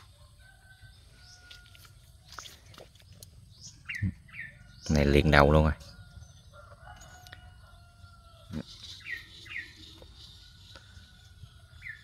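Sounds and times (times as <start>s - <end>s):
bird chirping: 0.8s - 12.0s
thin high calls: 7.0s - 12.0s.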